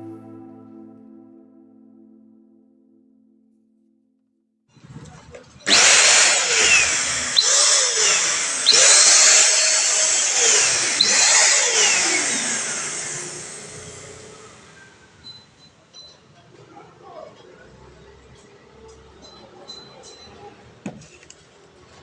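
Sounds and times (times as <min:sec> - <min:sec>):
small electric motor running: 0:05.6 - 0:15.0.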